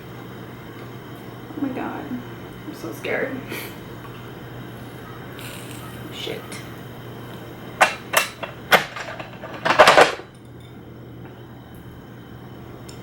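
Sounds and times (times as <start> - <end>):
rattling clatter: 7.8 - 10.3
kitchenware clinking on a pot: 7.8 - 10.7.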